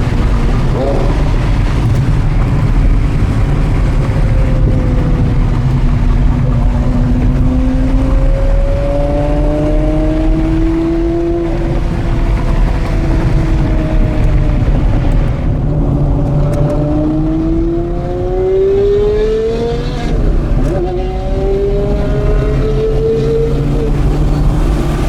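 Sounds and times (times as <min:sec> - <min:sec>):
sports car engine accelerating: 0:00.0 - 0:25.0
wind and road noise: 0:00.0 - 0:25.0.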